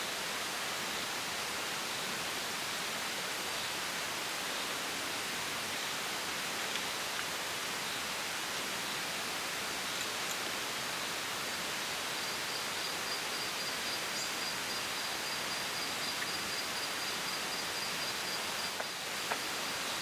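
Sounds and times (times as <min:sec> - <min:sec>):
rainforest hiss: 0:00.0 - 0:20.0
high insect whine: 0:08.8 - 0:20.0.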